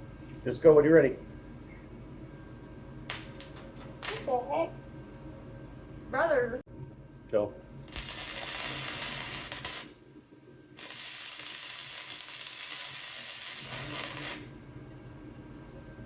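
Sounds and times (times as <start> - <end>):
welder arc crackling and sizzling: 3.0 - 4.7, 7.8 - 15.4.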